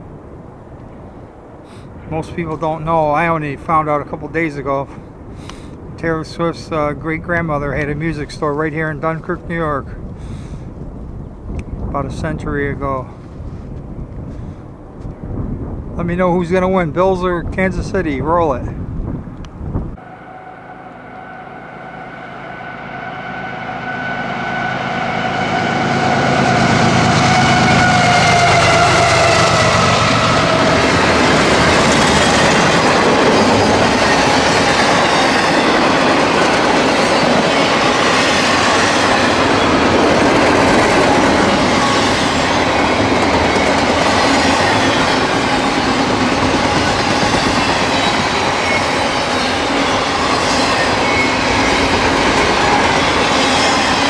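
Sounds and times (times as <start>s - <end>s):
freight train wheels rumbling: 0.0s - 54.0s
long tone sinking in pitch: 20.0s - 32.0s.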